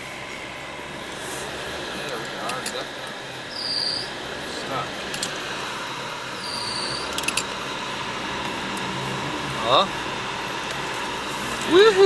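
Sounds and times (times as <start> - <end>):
car engine and road noise: 0.0 - 12.0
short high squeaks: 3.5 - 4.1, 6.4 - 7.3.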